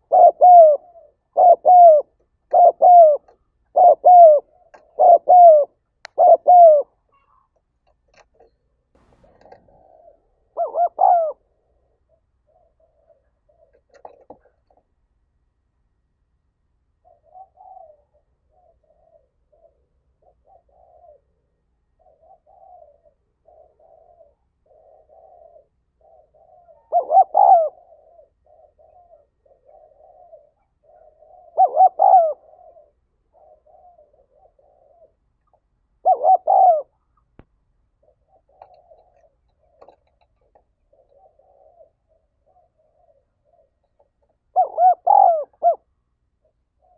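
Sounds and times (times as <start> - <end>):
dove cooing: 0.0 - 7.5, 8.4 - 14.8, 17.0 - 37.3, 37.9 - 46.9.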